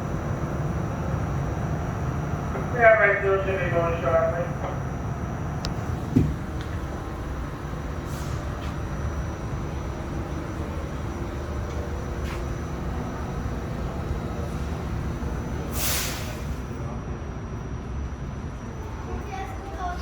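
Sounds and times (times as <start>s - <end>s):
subway car rumble: 0.0s - 20.0s
brake air hisses: 8.0s - 8.8s, 15.6s - 16.6s.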